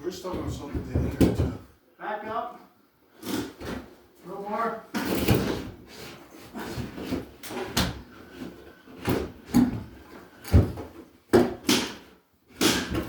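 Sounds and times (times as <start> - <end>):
staircase knocking and bumping: 0.1 - 1.7, 9.0 - 12.0.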